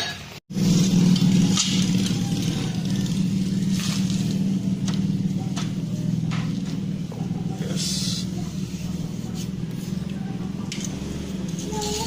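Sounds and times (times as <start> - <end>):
low machine drone: 0.5 - 12.0.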